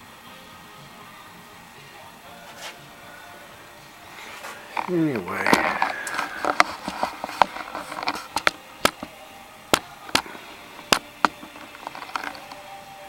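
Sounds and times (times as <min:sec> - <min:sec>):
sharp clicks and taps: 0:04.7 - 0:12.6.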